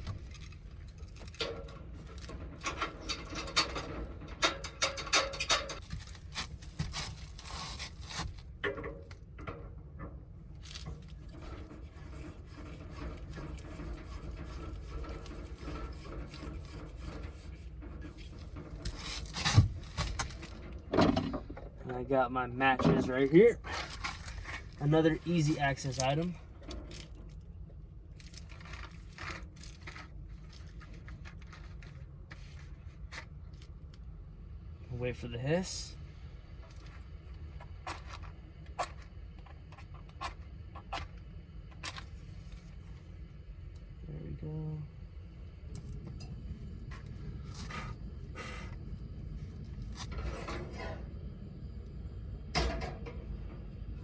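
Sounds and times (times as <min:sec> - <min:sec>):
handling rustles and scrapes: 0:00.0 - 0:09.6, 0:10.6 - 0:21.6, 0:23.0 - 0:27.5, 0:28.2 - 0:33.8, 0:46.1 - 0:51.2
steady low rumble: 0:00.0 - 0:54.0
handling scrapes and rubs: 0:11.2 - 0:20.5.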